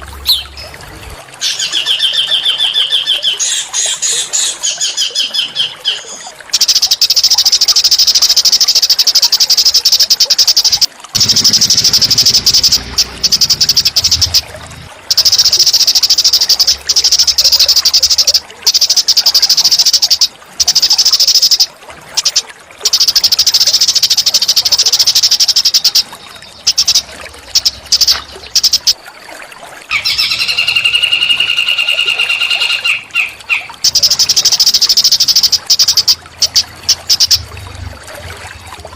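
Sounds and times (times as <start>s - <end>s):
songbird buzzy high trills: 6.6s - 14.5s, 29.9s - 37.4s.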